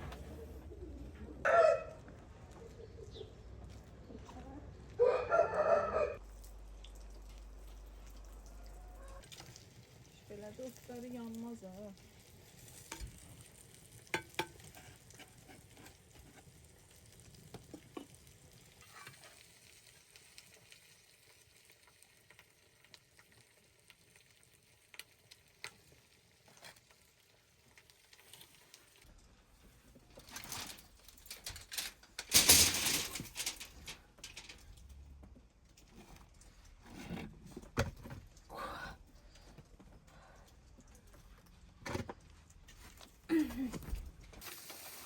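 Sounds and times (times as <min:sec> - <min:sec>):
food sizzling in a frying pan: 0:09.3 - 0:29.0, 0:44.4 - 0:45.0.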